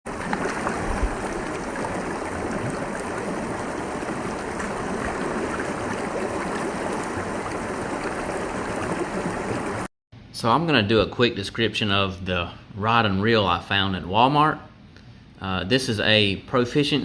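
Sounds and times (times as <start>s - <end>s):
creek water running: 0.0s - 9.9s
small splashes and ticks: 0.1s - 9.9s.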